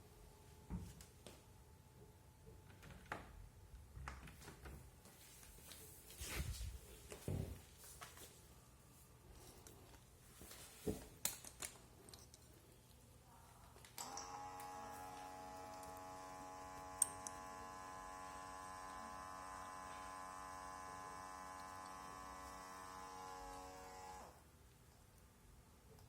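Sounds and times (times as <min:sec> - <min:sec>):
small electric motor humming: 0:14.0 - 0:24.4.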